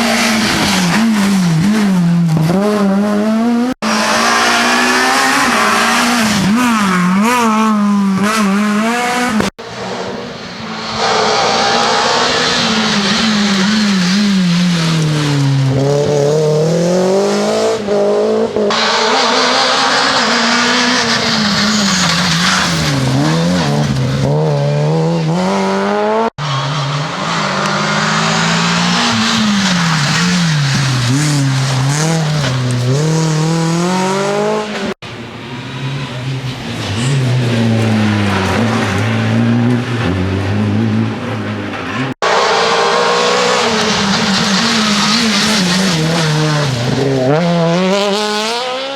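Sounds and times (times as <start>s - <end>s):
rally car engines revving: 0.0s - 48.9s
tyres squealing and skidding: 9.6s - 15.6s, 18.7s - 24.4s, 26.4s - 33.0s, 41.2s - 47.4s.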